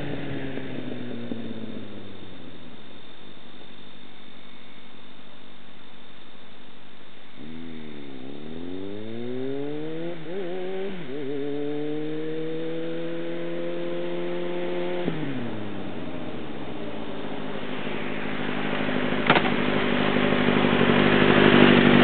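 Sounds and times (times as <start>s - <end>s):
motorcycle engine revving: 0.0s - 2.9s, 7.3s - 22.0s.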